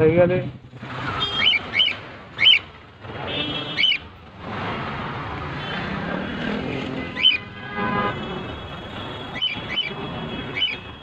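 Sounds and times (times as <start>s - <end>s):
traffic noise: 0.0s - 11.0s.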